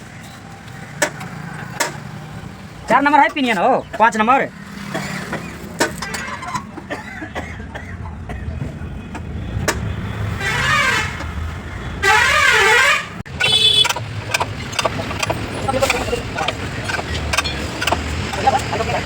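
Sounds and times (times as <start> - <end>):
warbling vehicle horn blasts: 10.3 - 11.3, 12.0 - 14.2
metallic clicks: 13.3 - 18.6.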